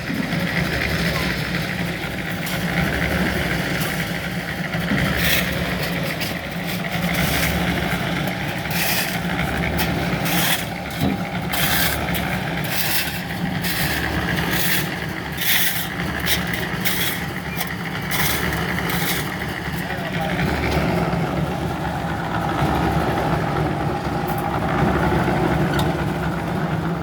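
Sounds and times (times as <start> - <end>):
tools scraping concrete: 0.6 - 21.0.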